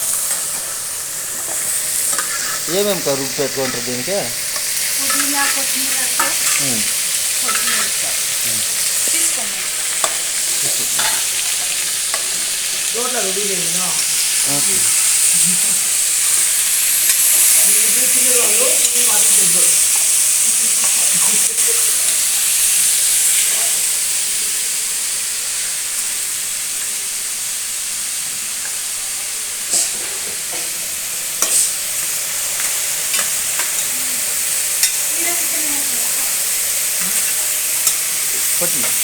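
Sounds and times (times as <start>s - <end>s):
food sizzling in hot oil: 0.0s - 39.0s
spoon clicking against pan: 4.6s - 5.6s.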